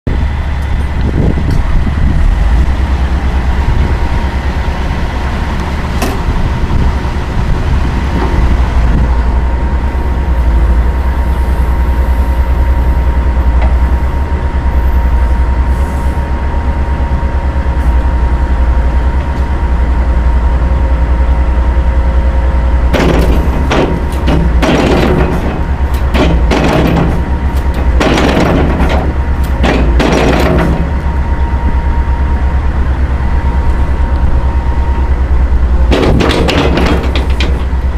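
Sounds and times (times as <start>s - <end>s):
excavator diesel engine running: 0.1s - 37.9s
metallic clanking and rattling: 5.6s - 14.2s, 22.9s - 31.4s, 35.8s - 37.9s.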